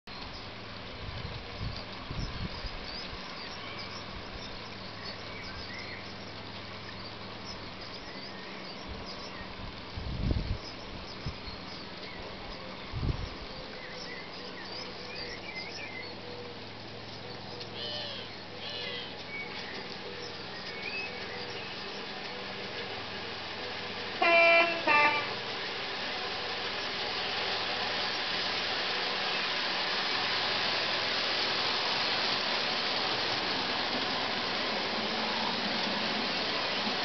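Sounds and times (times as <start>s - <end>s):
small birds chirping: 0.1s - 0.6s, 1.6s - 9.8s, 10.4s - 23.1s.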